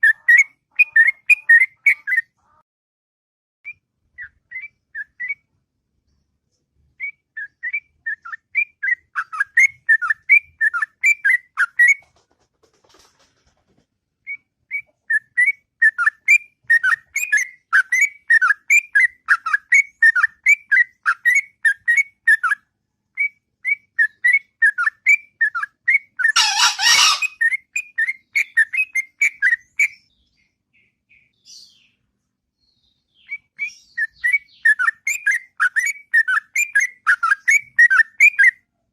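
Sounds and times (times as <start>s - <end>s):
bird singing whistled notes: 3.7s - 5.5s, 7.0s - 12.0s, 14.3s - 22.6s, 23.2s - 32.0s, 32.6s - 38.6s.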